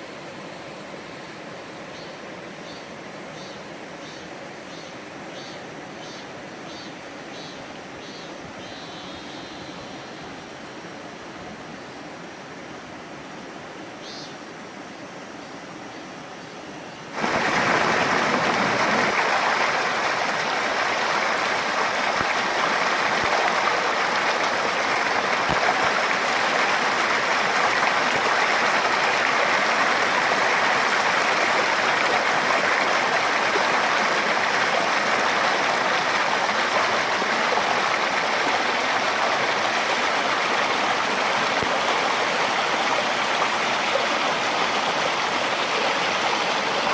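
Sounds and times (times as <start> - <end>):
stream rushing: 0.0 - 4.4, 7.6 - 46.9.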